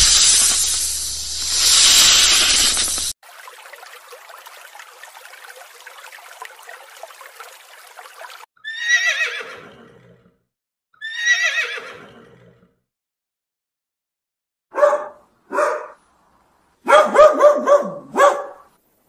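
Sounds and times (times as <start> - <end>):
faint hiss with crackling: 0.0 - 3.2
horse whinnying: 8.6 - 10.3, 11.0 - 12.7.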